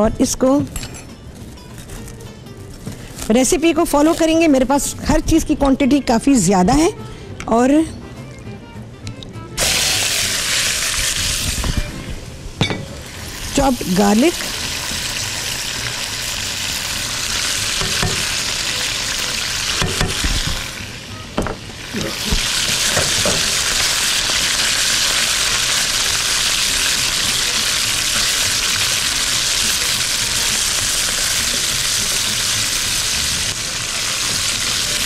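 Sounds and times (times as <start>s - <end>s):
chicken sizzling in hot oil: 9.6s - 12.1s, 13.0s - 21.1s, 21.7s - 35.0s.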